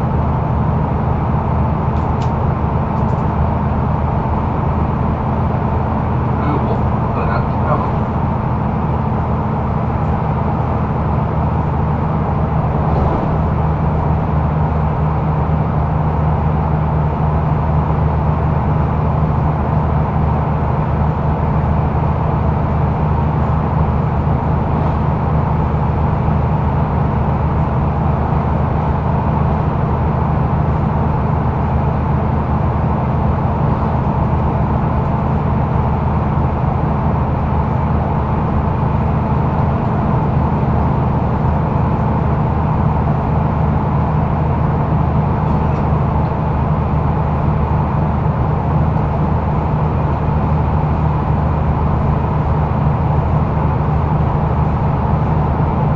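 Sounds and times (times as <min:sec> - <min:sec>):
bus engine drone: 0:00.0 - 0:55.9
road and cabin noise: 0:00.0 - 0:55.9.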